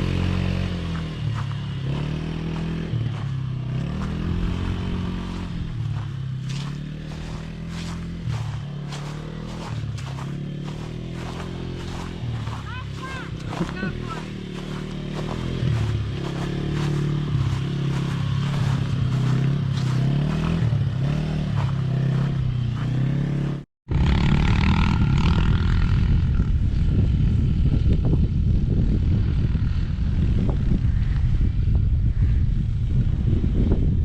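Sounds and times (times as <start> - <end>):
rough low rumble: 0.0 - 22.8
wind buffeting microphone: 0.0 - 22.8, 24.4 - 34.0
motorbike engine revving: 0.0 - 34.0.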